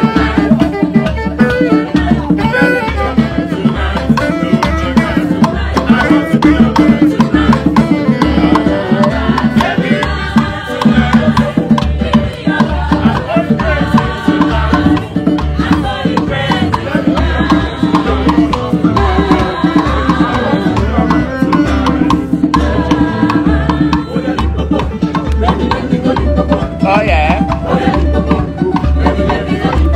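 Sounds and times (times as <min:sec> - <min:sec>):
hand drums and percussion: 0:00.0 - 0:29.9
pitched instruments or voices: 0:00.0 - 0:29.9
steady deep beat: 0:00.0 - 0:29.9.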